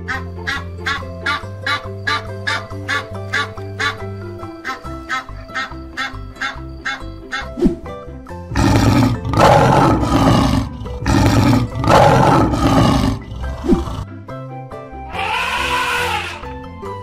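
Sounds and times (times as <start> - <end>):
background music: 0.0 - 17.0
lion roaring: 8.5 - 14.0.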